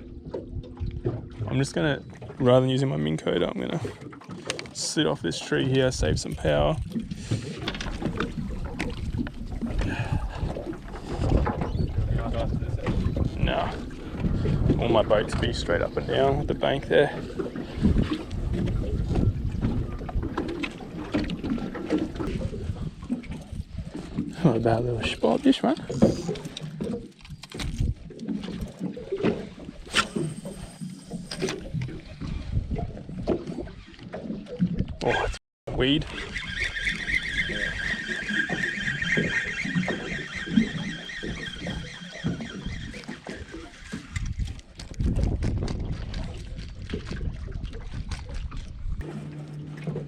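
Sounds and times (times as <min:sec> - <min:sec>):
water lapping against boat hull: 0:00.0 - 0:50.0
wind buffeting microphone: 0:05.2 - 0:27.0, 0:27.6 - 0:33.9, 0:34.6 - 0:49.1.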